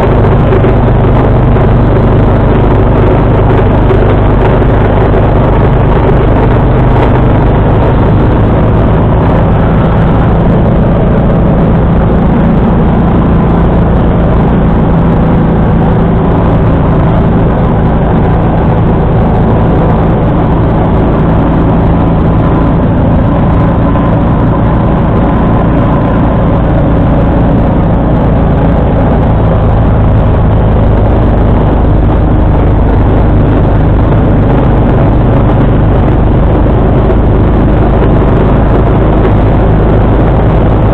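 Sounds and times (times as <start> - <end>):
tractor engine droning: 0.0 - 40.9.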